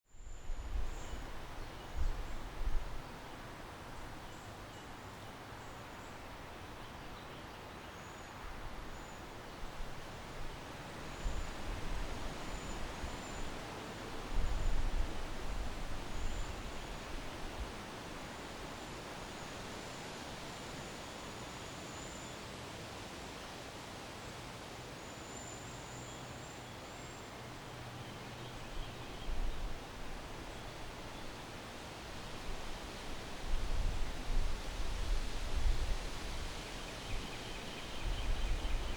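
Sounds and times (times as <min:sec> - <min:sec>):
wind hiss: 0:00.1 - 0:38.9.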